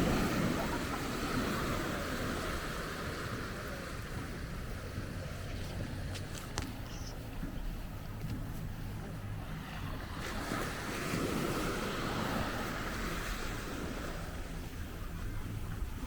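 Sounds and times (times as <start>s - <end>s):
sea wave breaking on shore: 0.0s - 4.4s
wind rumble on microphone: 0.0s - 16.0s.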